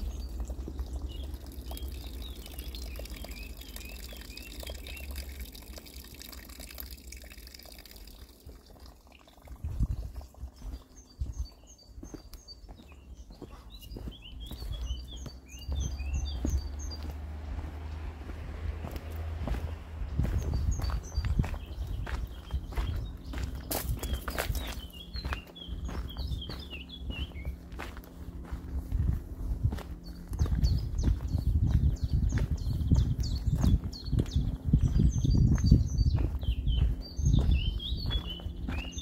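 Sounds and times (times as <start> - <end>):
low rumble: 0.0 - 5.7, 13.1 - 39.0
songbirds chirping: 0.0 - 39.0.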